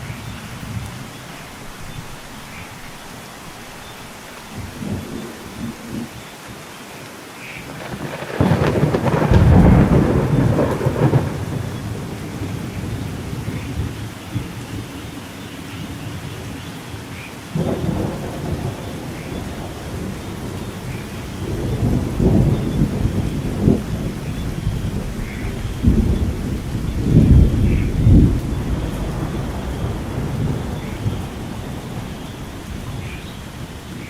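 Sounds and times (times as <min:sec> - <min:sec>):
steady rain: 0:00.0 - 0:34.0
rolling thunder: 0:07.6 - 0:14.9, 0:17.5 - 0:34.0.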